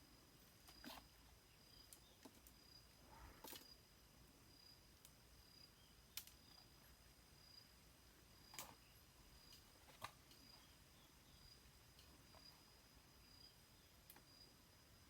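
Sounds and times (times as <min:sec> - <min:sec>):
faint sharp clicks: 0:06.1 - 0:06.6.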